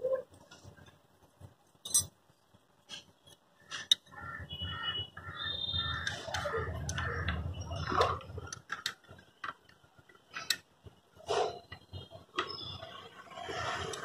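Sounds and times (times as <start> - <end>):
crow-like bird calling: 3.6 - 8.0.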